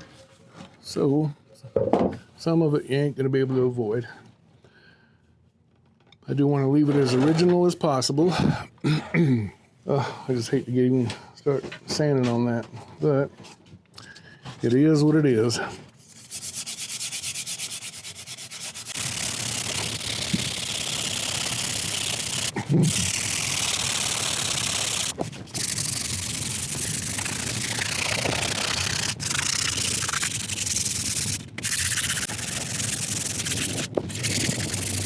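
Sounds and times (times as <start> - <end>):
sandpaper scrubbing wood: 16.0 - 35.0.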